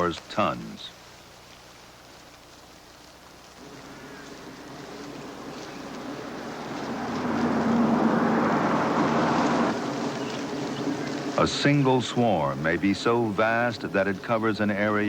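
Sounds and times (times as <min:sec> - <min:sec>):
low hum: 0:03.4 - 0:15.0
locust wings whirring: 0:03.6 - 0:13.6.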